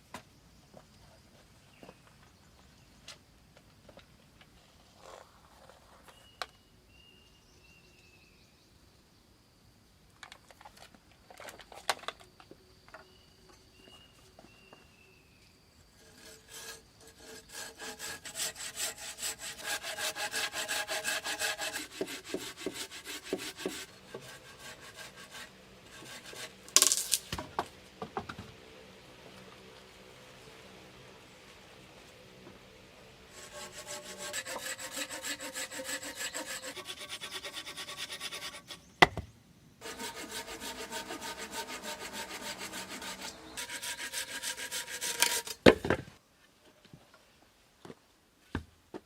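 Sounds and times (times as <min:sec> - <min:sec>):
hand saw cutting wood: 0:16.0 - 0:27.2, 0:33.3 - 0:38.8, 0:39.8 - 0:45.7.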